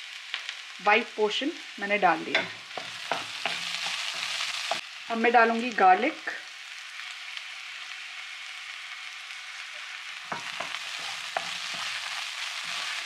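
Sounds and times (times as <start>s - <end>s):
aromatics sizzling in hot oil: 0.0s - 13.0s
stirring knocks and scrapes: 2.4s - 4.8s, 10.3s - 13.0s.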